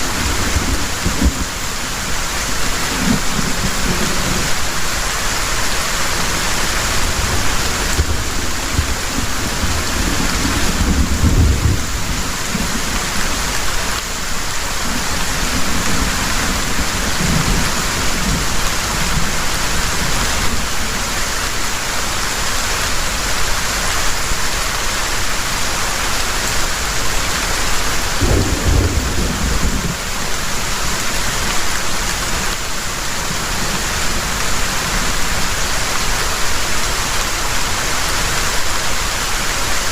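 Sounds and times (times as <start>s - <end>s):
heavy rain: 0.0s - 39.9s
thunder rolling: 7.0s - 12.9s, 28.2s - 30.0s.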